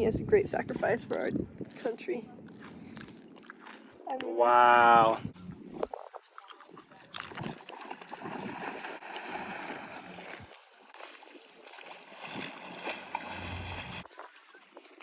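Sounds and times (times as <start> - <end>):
seawater splashing and sloshing: 6.2 - 15.0.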